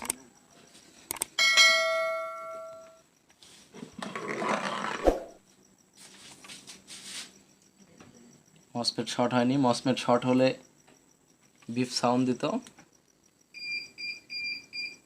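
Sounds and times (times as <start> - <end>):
sharp click: 0.0 - 0.2, 1.1 - 1.3
metallic bell-like ring: 1.4 - 3.1.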